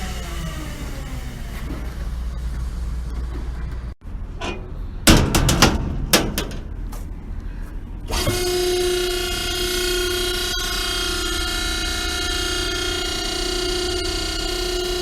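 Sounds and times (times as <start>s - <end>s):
baler motor humming: 0.0s - 3.9s, 8.0s - 15.0s
loud metal bangs and clanks: 4.4s - 6.9s.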